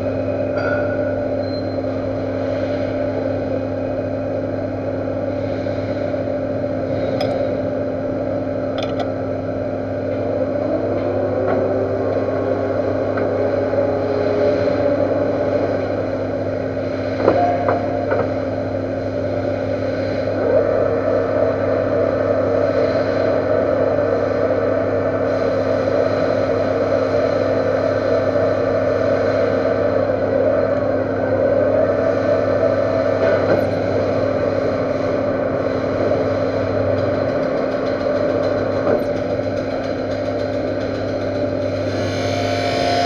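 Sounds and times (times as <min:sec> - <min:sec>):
metal lathe humming: 0:41.4 - 0:43.0.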